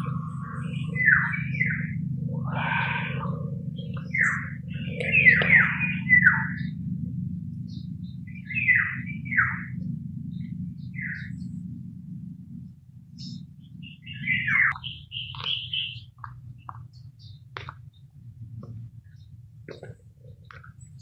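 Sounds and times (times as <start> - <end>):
bird calling with falling notes: 0.0 - 6.8, 7.7 - 9.8, 13.2 - 16.8
steady low hum: 0.0 - 21.0.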